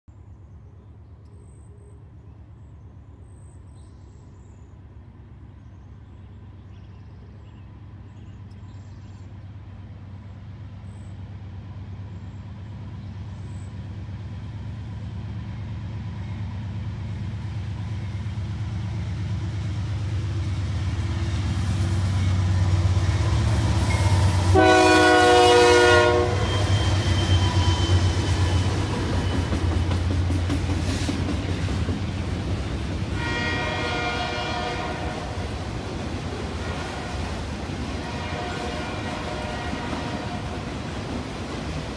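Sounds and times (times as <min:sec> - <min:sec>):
train cars rumbling on rails: 0:04.7 - 0:41.9
diesel locomotive rumble: 0:07.6 - 0:41.9
train horn blast: 0:23.9 - 0:28.1, 0:33.2 - 0:35.5, 0:36.6 - 0:40.7.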